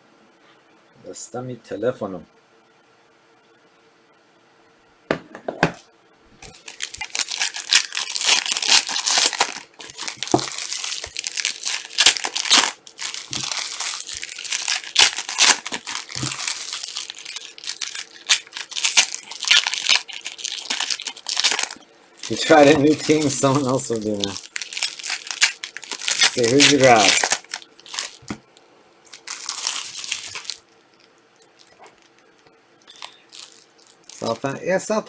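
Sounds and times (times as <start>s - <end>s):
plastic wrapping crinkling and tearing: 6.4s - 28.4s, 29.1s - 34.6s.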